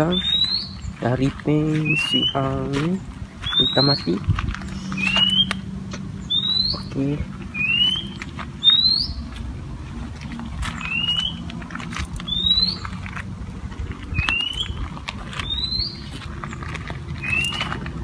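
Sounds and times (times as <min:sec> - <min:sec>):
low steady hum: 0:00.0 - 0:18.0
bird rising whistles: 0:04.8 - 0:05.6, 0:06.3 - 0:06.9, 0:07.5 - 0:09.2, 0:10.8 - 0:11.4, 0:15.4 - 0:16.0, 0:17.2 - 0:17.6.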